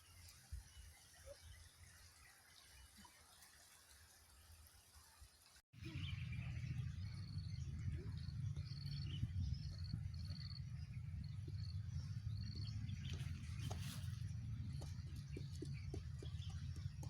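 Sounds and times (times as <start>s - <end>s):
low rumble: 5.8s - 17.0s.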